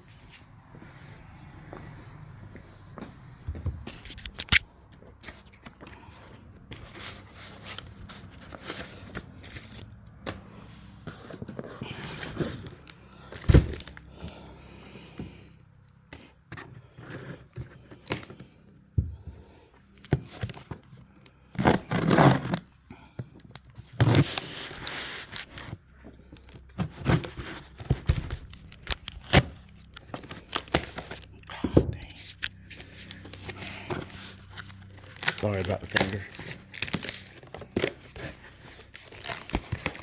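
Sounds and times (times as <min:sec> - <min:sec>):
packaging tearing and crinkling: 0:11.9 - 0:14.1, 0:21.6 - 0:22.6, 0:26.8 - 0:31.4, 0:32.8 - 0:40.0.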